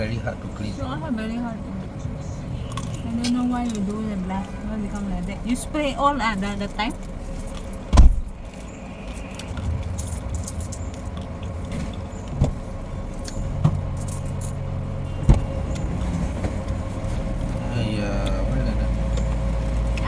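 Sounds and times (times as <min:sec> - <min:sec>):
car humming: 0:00.0 - 0:20.0
loud thump: 0:07.9 - 0:08.4, 0:15.2 - 0:15.5.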